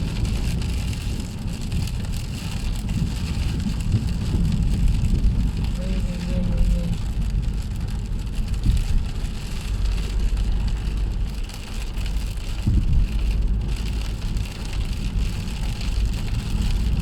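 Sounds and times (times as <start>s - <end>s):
engine and tyres rumbling: 0.0s - 17.0s
heavy rain drumming on car roof: 0.0s - 17.0s.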